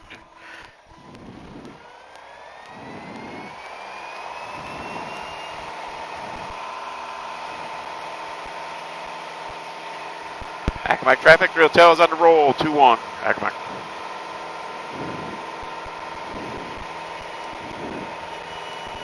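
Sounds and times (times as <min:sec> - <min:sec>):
airplane piston engine throttling up: 0:00.0 - 0:19.0.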